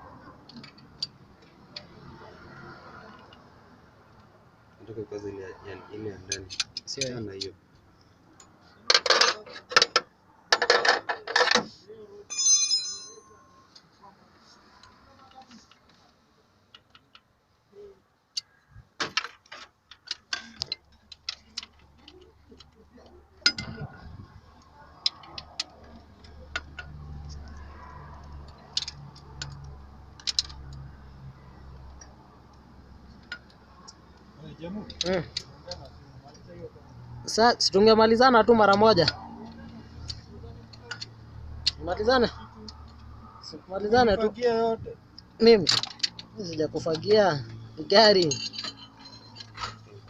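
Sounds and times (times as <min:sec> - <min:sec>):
metal tools clattering: 0:12.3 - 0:13.7, 0:48.1 - 0:50.0
ringing metallic clang: 0:12.3 - 0:13.7.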